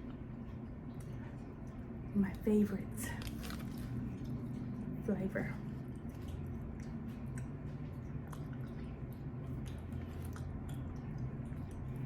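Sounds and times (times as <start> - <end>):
steady low hum: 0.0 - 12.0
person chewing: 5.7 - 12.0.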